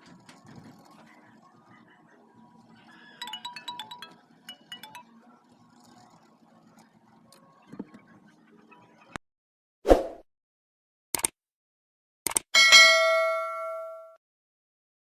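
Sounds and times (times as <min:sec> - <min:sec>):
high chiming tune: 0:03.2 - 0:05.3.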